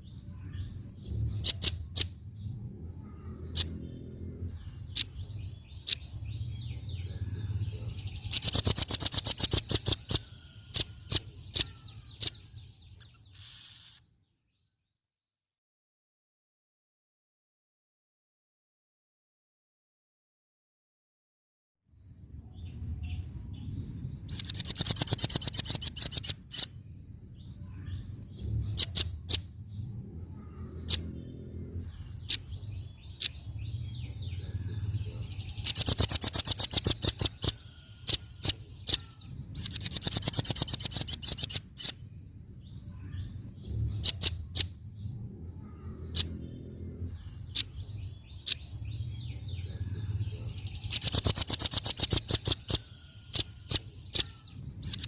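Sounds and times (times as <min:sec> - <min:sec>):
low rumble: 0:00.0 - 0:08.4, 0:22.0 - 0:24.8, 0:26.4 - 0:35.9, 0:37.5 - 0:51.0
bird sharp chirps: 0:00.0 - 0:14.2, 0:24.3 - 0:55.0
bird high-pitched trills: 0:00.3 - 0:02.3, 0:03.0 - 0:14.1, 0:24.3 - 0:26.8, 0:28.6 - 0:29.6, 0:30.3 - 0:44.9, 0:45.6 - 0:55.0.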